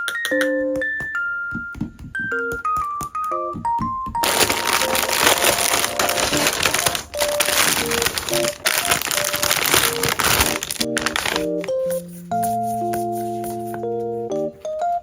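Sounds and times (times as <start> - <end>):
soft piano music: 0.0 - 15.0
packaging crinkling and rustling: 4.2 - 11.8.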